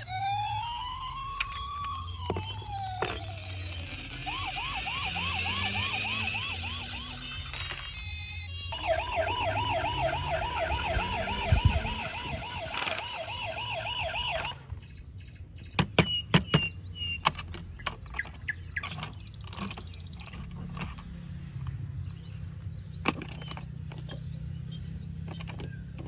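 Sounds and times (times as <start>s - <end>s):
electronic toy siren warbling: 0.0s - 14.7s.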